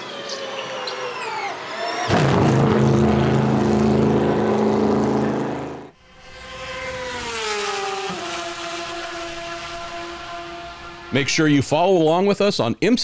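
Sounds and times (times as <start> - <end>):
race car engine running loud: 2.1 - 11.2
quieter race car engine note: 2.1 - 11.7.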